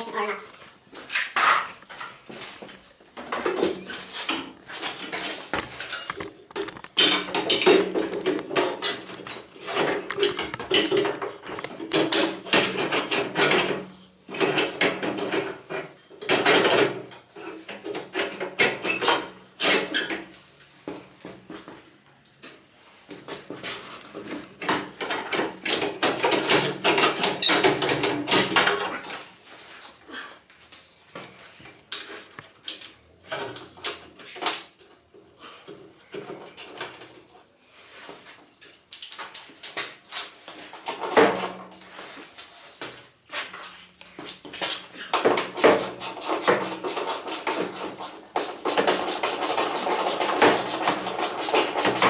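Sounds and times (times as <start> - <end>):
metal tools clinking: 2.3 - 3.0.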